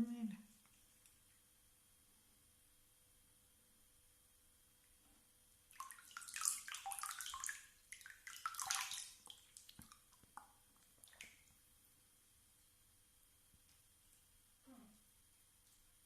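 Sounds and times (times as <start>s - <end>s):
water dripping: 5.7s - 11.7s
water splashing in a bath: 5.7s - 11.7s.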